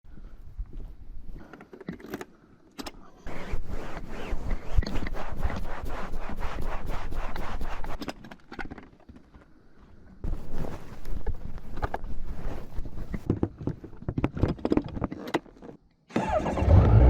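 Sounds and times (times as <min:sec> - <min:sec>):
rustling and scraping: 0:03.3 - 0:15.8.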